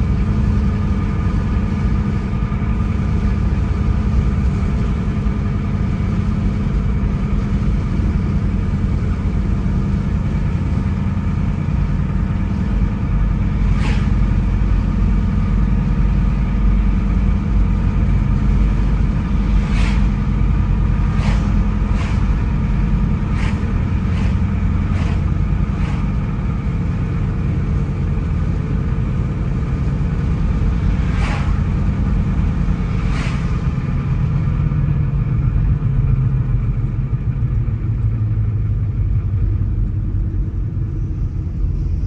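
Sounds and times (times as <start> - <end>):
car engine and tyres rumbling: 0.0 - 42.0.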